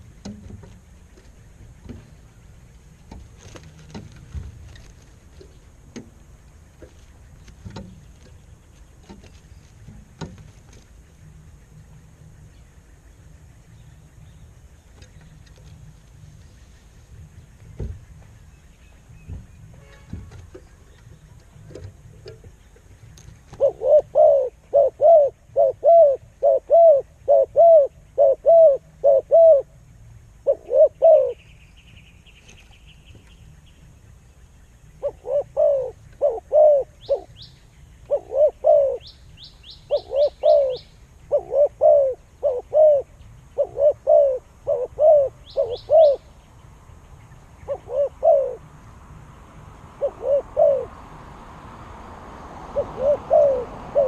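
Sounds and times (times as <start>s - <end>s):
buzzy bird trill: 34.7s - 46.4s.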